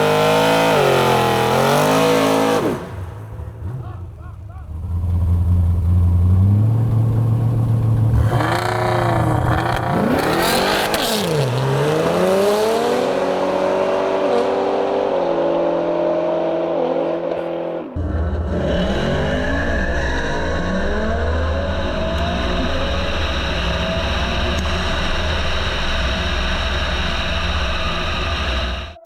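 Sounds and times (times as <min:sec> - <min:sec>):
race car engine revving: 0:00.0 - 0:29.0
low engine rumble: 0:02.8 - 0:10.1, 0:17.4 - 0:29.0.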